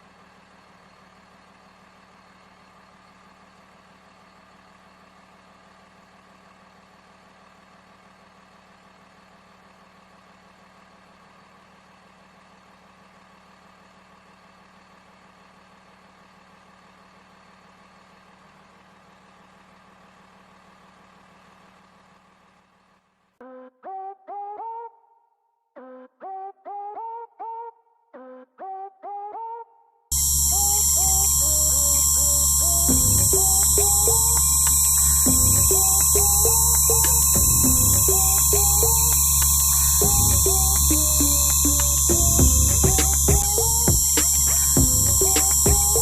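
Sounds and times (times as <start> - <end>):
small motor running: 30.1 - 46.0.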